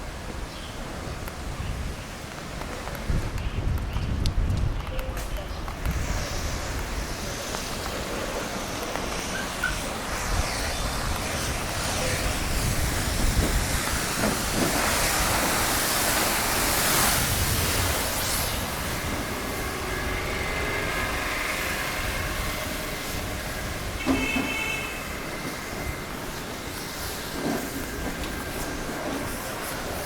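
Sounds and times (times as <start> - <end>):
tyres hissing on wet road: 0.0 - 4.6, 5.2 - 30.0
low traffic rumble: 0.0 - 30.0.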